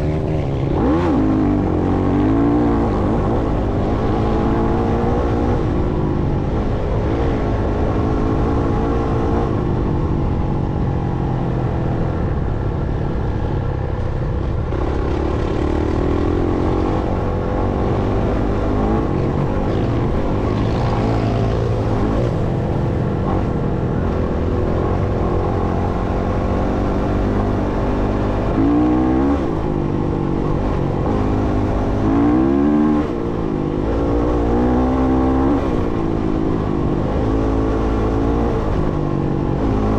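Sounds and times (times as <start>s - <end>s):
dirt bike engine revving: 0.0s - 5.7s, 14.7s - 29.8s.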